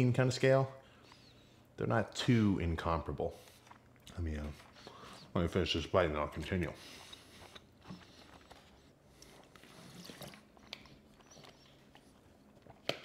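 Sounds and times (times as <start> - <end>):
person chewing food: 2.8 - 13.0.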